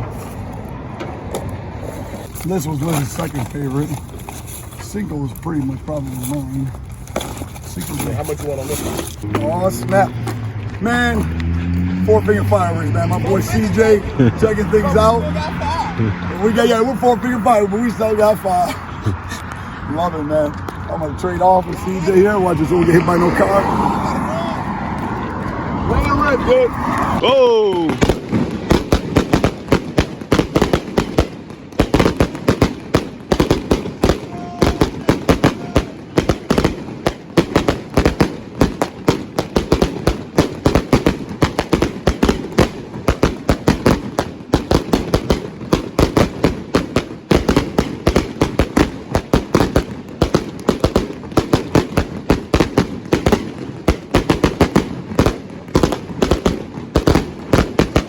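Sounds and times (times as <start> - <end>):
firecrackers banging rapidly: 0.0 - 58.0.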